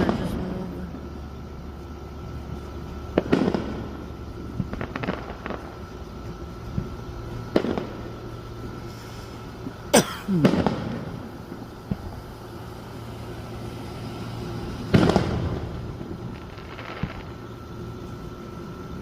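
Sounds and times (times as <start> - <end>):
fireworks bangs: 0.0 - 1.3, 2.1 - 18.0
crackling firework pops: 2.7 - 9.8, 10.4 - 12.3, 14.8 - 17.6.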